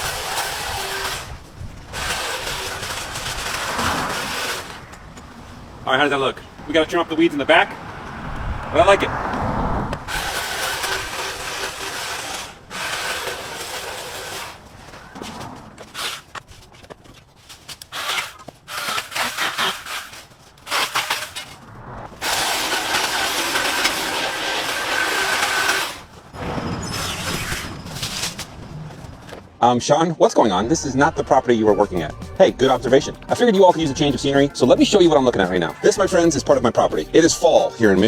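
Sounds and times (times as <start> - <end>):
handheld garden power tool running: 0.0 - 4.9, 10.1 - 14.6, 17.9 - 21.4, 22.2 - 26.1.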